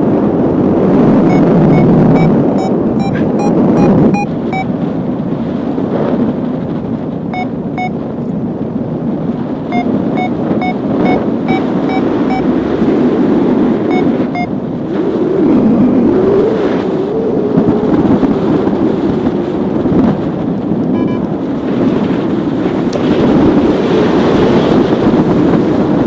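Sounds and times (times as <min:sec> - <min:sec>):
wind rushing over microphone: 0:00.0 - 0:26.0
variometer beeps: 0:01.2 - 0:04.8, 0:07.3 - 0:08.0, 0:09.7 - 0:12.6, 0:13.8 - 0:14.6, 0:20.8 - 0:21.4.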